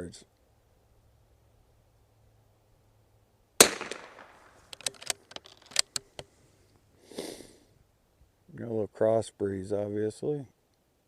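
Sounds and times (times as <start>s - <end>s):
rifle shot: 3.6s - 5.1s
rifle bolt clicks: 3.6s - 6.3s.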